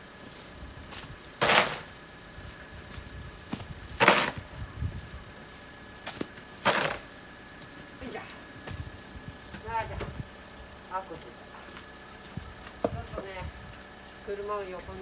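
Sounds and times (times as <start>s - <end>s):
shovel scraping snow: 1.4s - 2.0s, 4.0s - 4.5s, 6.1s - 7.1s.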